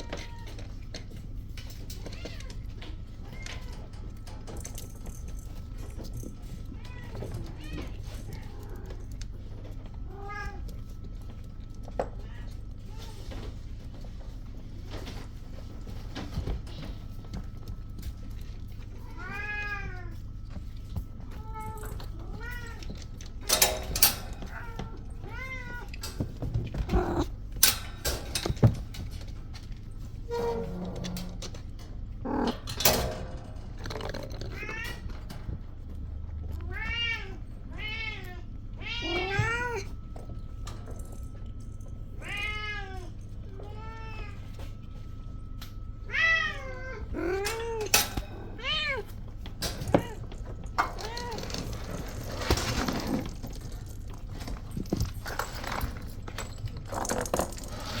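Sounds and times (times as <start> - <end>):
kittens meowing: 26.8 - 27.4, 32.2 - 32.7.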